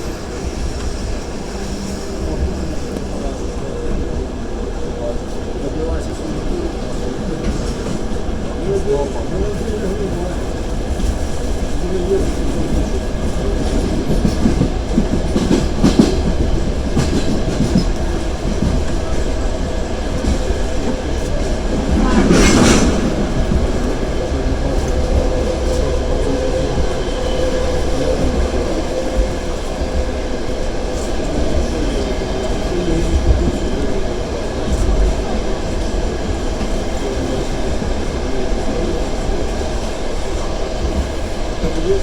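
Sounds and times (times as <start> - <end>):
train wheels rumbling on rail: 0.0 - 42.0
brief loud rush: 21.9 - 24.4.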